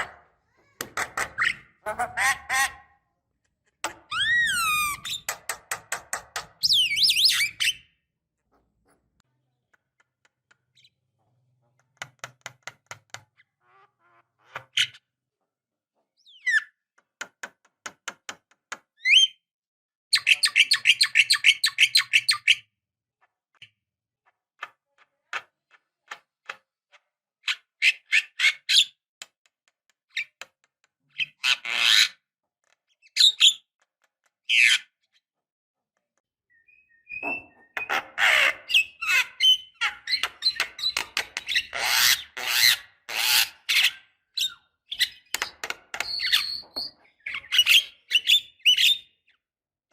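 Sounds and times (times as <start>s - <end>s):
bird whistled and harsh notes: 46.0s - 49.2s.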